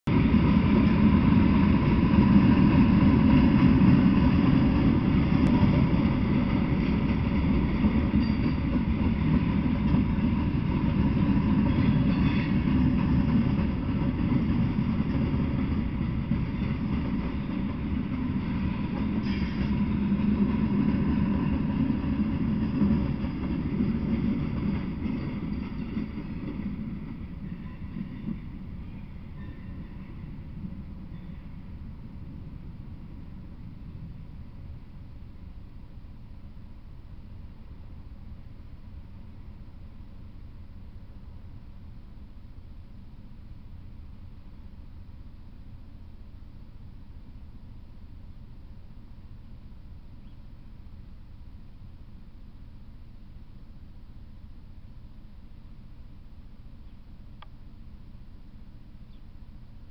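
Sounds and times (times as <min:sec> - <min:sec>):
freight train rolling past: 0:00.1 - 0:39.4.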